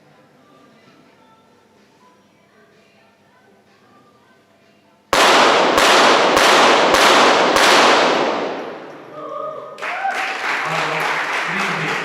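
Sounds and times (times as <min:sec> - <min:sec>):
pistol shots echoing: 0:05.2 - 0:09.2
applause: 0:09.8 - 0:12.0.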